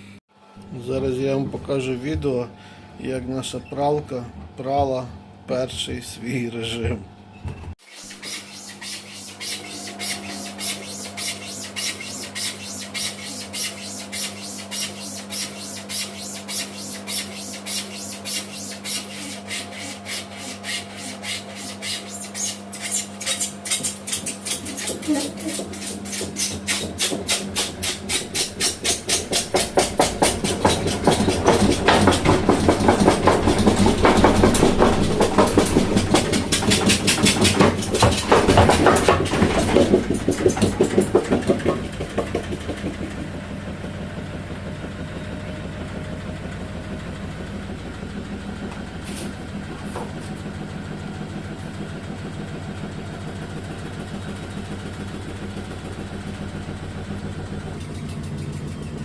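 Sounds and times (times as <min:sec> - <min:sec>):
motor hum: 0:00.0 - 0:59.0
washing machine drum banging: 0:23.7 - 0:45.0.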